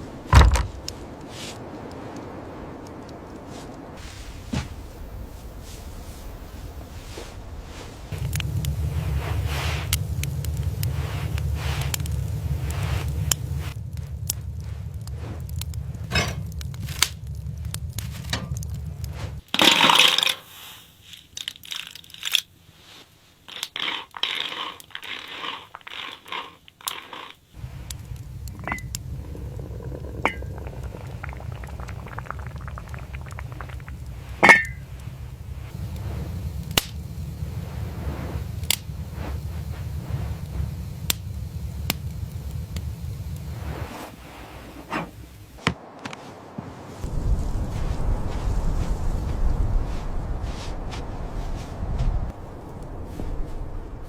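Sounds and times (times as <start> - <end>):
steady low rumble: 0.0 - 19.5, 27.6 - 54.0
crackles and clicks: 0.0 - 54.0
repeated crunching: 23.6 - 38.0.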